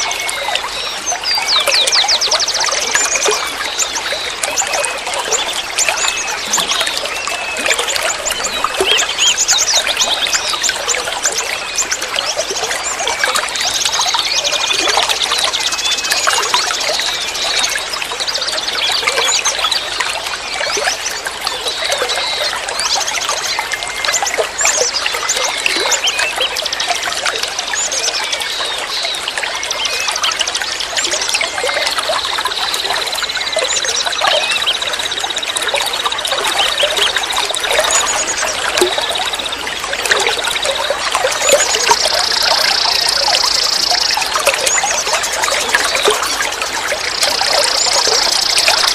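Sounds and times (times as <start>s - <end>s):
water trickling and gurgling: 0.0s - 48.9s
small birds chirping: 20.6s - 48.9s.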